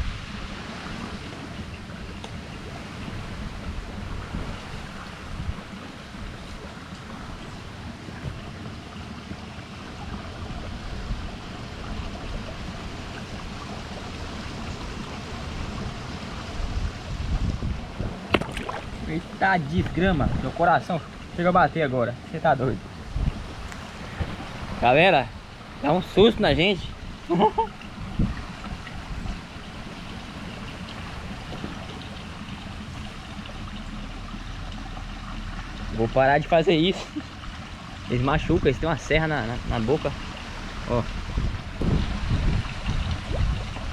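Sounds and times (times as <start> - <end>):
wind on microphone: 0.0 - 8.8, 9.9 - 21.4, 22.6 - 33.4, 38.1 - 43.9
moving water: 0.0 - 43.9
fish splash at surface: 18.2 - 19.4.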